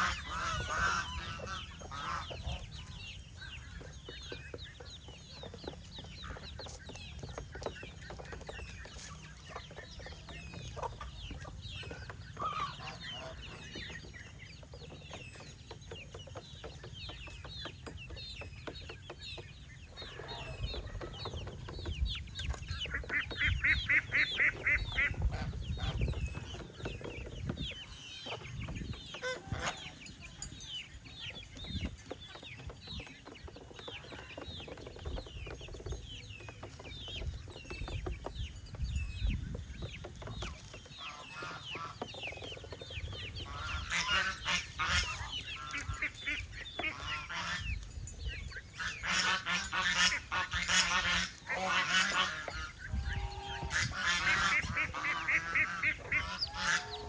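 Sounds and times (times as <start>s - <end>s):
geese honking: 0.0s - 14.4s, 29.1s - 30.0s, 40.9s - 42.7s, 43.3s - 47.8s, 48.6s - 57.0s
young birds peeping: 0.0s - 57.0s.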